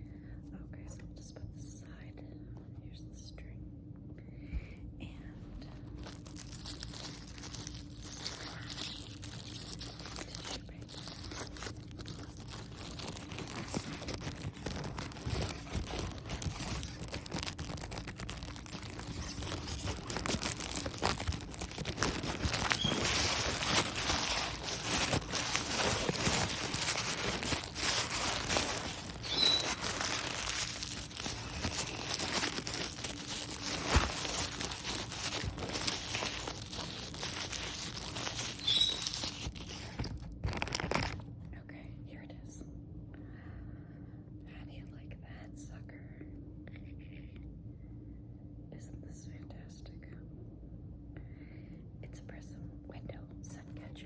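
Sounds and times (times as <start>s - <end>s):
packaging bags crinkling: 5.7s - 41.2s.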